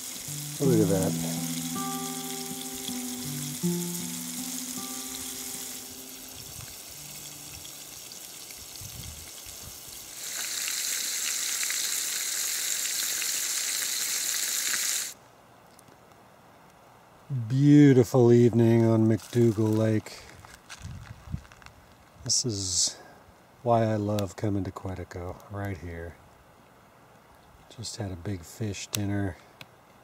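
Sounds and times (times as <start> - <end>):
held musical notes: 0.0 - 7.9
fish frying in oil: 0.0 - 15.2.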